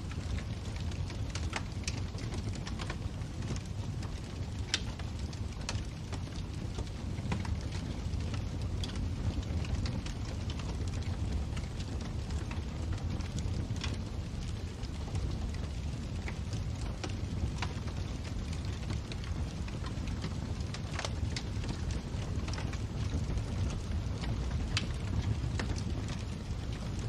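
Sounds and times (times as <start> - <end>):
fire crackles and pops: 0.0 - 27.0
fire low rumble: 0.0 - 27.0.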